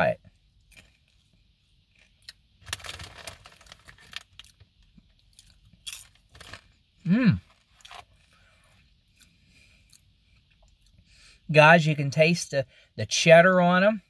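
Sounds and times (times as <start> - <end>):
person chewing popcorn: 1.9 - 6.7, 7.4 - 11.0
closed-mouth hum: 6.9 - 13.1.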